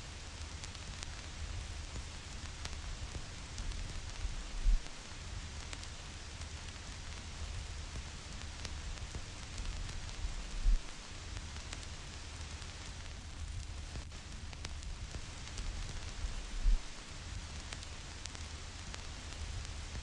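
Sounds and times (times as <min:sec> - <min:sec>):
vinyl record hiss: 0:00.0 - 0:20.0
stylus crackles and pops: 0:00.1 - 0:20.0
low rumble: 0:04.2 - 0:04.9.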